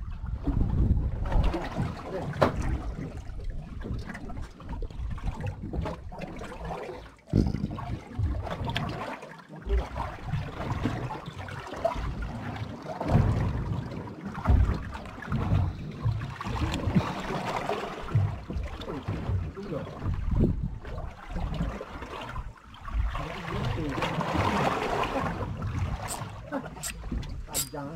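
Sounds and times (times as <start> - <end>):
wind buffeting microphone: 0.0 - 2.0
water sloshing around a boat: 0.0 - 27.9.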